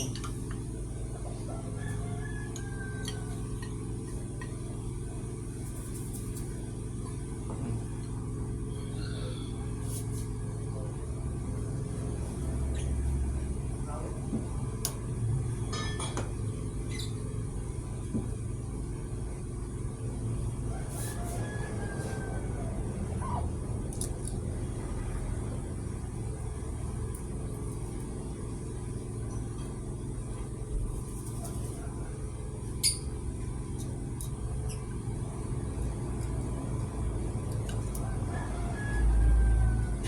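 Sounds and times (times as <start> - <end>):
machine rumbling: 0.0 - 40.0.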